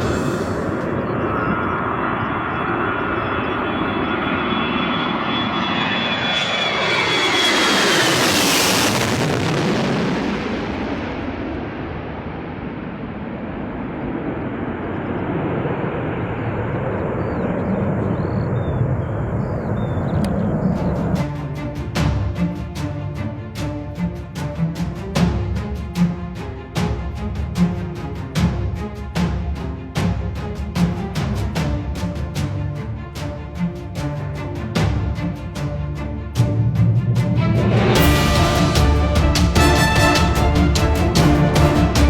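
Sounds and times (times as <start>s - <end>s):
aircraft engine whine overhead: 0.0s - 42.0s
aircraft rumble: 0.0s - 42.0s.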